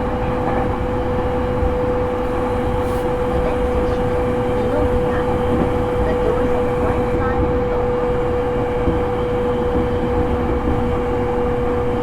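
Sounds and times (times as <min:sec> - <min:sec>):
wheels rumbling on rail: 0:00.0 - 0:12.0.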